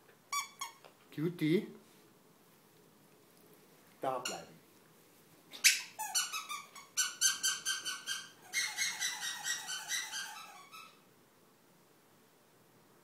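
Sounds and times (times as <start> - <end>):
dog toy squeaking: 0.3 - 0.8, 5.6 - 11.0.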